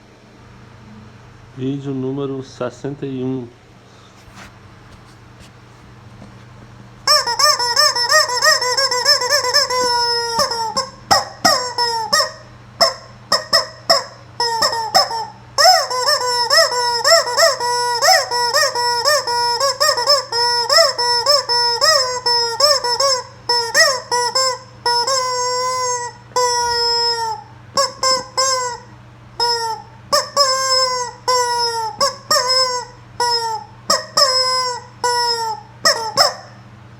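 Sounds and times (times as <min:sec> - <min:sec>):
rubber chicken toy squawking: 0:07.1 - 0:36.6.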